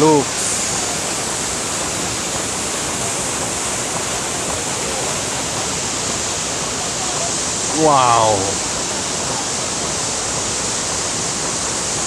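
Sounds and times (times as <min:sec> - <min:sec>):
waterfall crashing: 0:07.5 - 0:08.8.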